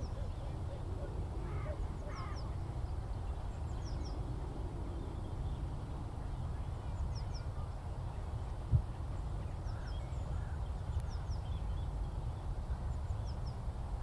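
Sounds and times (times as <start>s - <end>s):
small birds chirping: 9.4s - 13.6s.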